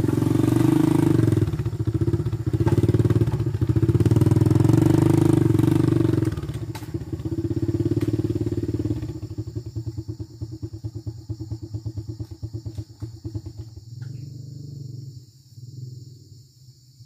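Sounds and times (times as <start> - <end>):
small motorcycle engine: 0.0 - 15.0.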